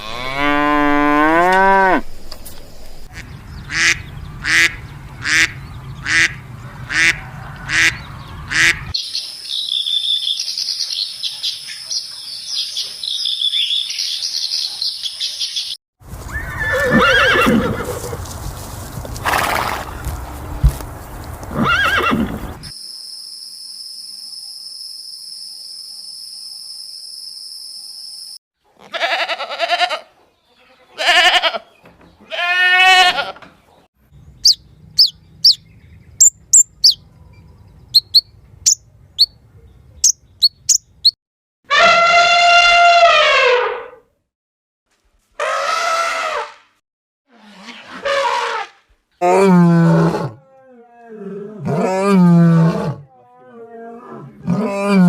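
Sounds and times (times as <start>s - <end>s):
cow mooing: 0.0s - 2.1s
goat bleating: 28.8s - 33.4s.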